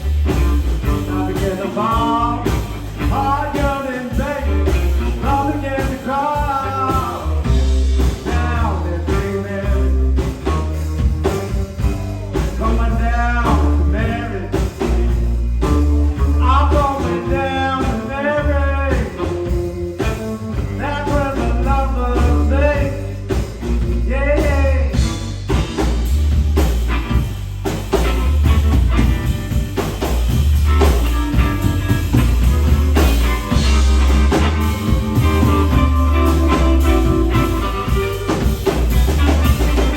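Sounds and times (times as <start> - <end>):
blues-rock band playing: 0.0 - 39.9
heavy pulsing bass: 0.0 - 39.9
person singing: 0.8 - 10.6, 11.2 - 15.0, 15.8 - 23.3, 32.2 - 39.9.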